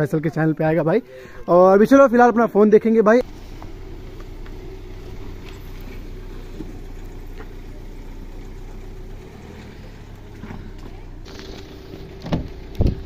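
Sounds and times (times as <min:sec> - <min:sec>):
car engine idling: 0:03.2 - 0:13.0.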